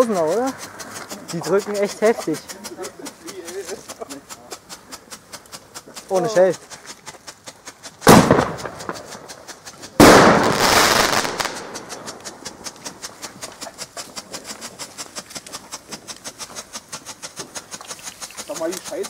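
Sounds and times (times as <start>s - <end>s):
fast even crackle: 0.0s - 19.0s
firecracker bangs: 8.0s - 12.6s.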